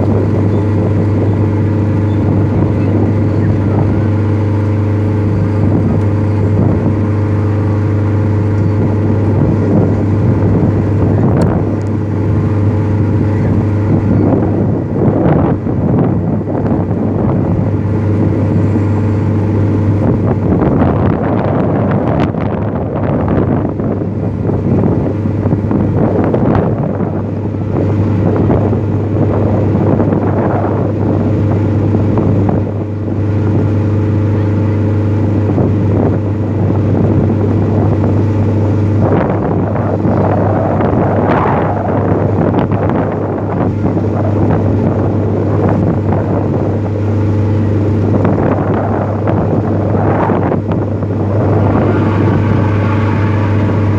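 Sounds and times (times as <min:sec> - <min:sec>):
boat engine running: 0:00.0 - 0:53.9
wind buffeting microphone: 0:00.0 - 0:53.9.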